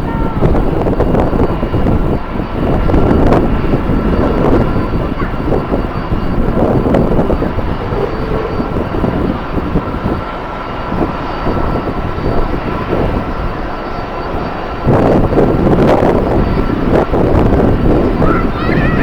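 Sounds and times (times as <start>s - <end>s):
jet engines rushing: 0.0s - 19.0s
thin steady whine: 0.0s - 19.0s.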